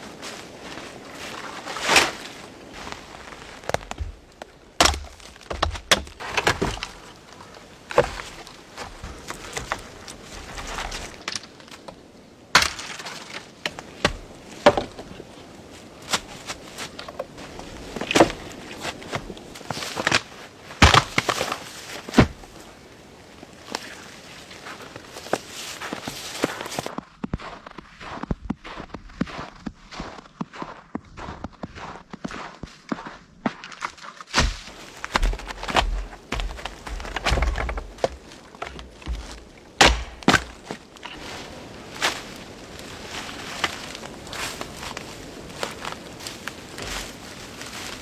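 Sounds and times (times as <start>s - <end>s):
sharp knocks and cracks: 3.6s - 7.1s, 10.6s - 15.0s, 19.9s - 22.4s, 33.7s - 41.2s.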